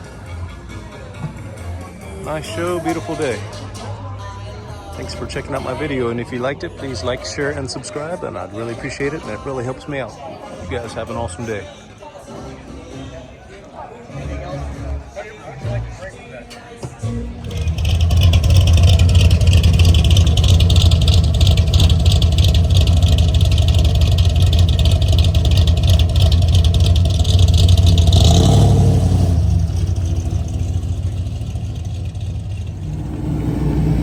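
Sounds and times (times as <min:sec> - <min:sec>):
car engine rumbling: 0:17.2 - 0:34.0.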